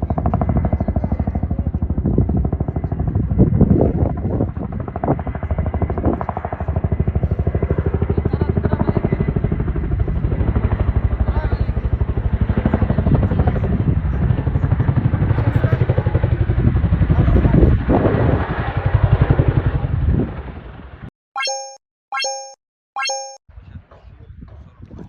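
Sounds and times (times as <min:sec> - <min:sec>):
helicopter engine drone: 0:00.0 - 0:17.2
helicopter rotor beating: 0:00.0 - 0:20.4.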